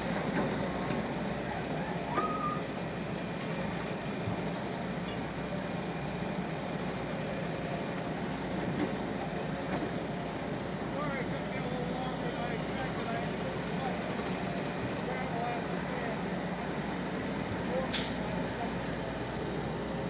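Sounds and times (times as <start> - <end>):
short high squeak: 1.8 - 2.7.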